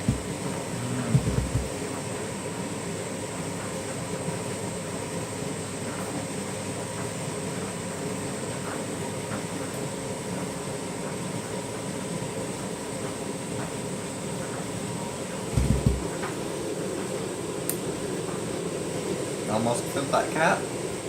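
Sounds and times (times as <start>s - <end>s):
washing machine drum rumbling: 0.0s - 2.1s, 15.3s - 17.2s.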